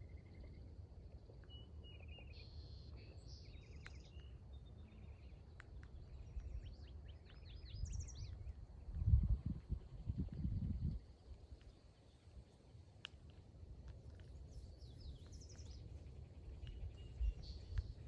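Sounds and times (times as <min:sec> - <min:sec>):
small birds calling and singing: 0:00.0 - 0:13.4, 0:14.0 - 0:18.0
steady low rumble: 0:07.7 - 0:11.7.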